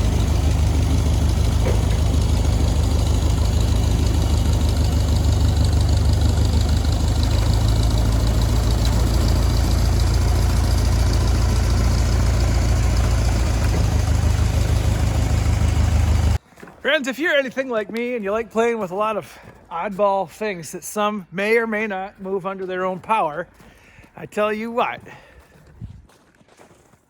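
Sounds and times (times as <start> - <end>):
forklift engine humming: 0.0 - 16.4.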